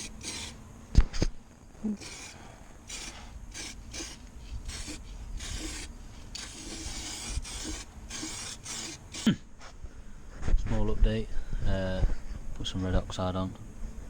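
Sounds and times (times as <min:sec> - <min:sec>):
paintbrush strokes on metal: 0:00.0 - 0:00.6, 0:01.8 - 0:09.3.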